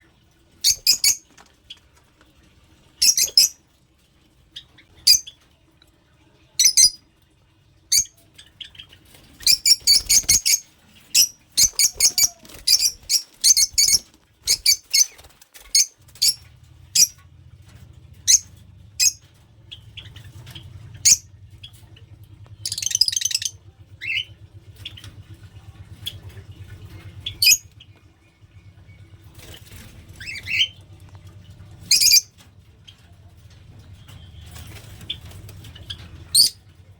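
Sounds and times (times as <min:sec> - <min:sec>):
faint low hum: 0:00.0 - 0:36.9
lovebirds squawking: 0:00.6 - 0:01.2, 0:09.4 - 0:16.4.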